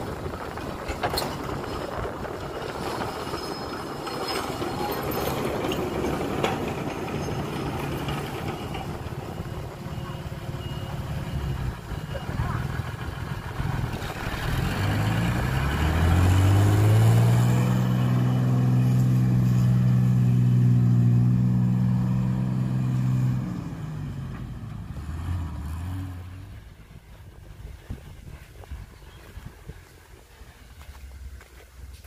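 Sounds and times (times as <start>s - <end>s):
heavy diesel engine revving: 5.0s - 26.8s.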